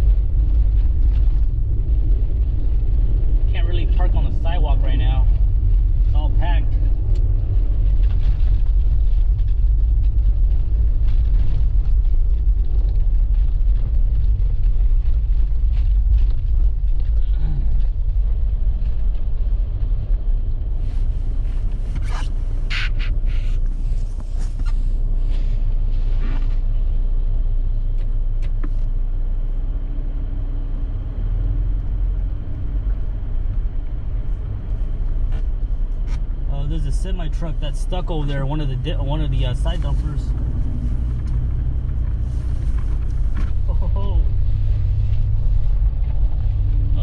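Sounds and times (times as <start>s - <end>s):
car driving through slushy snow: 0.0s - 47.0s.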